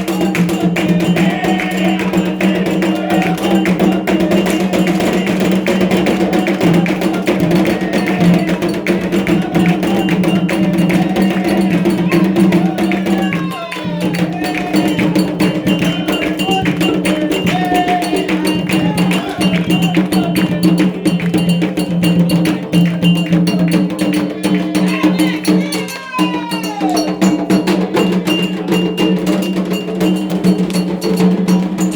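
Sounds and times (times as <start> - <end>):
fast drum rhythm: 0.0 - 31.9
struck metal bell clanging: 0.0 - 31.9.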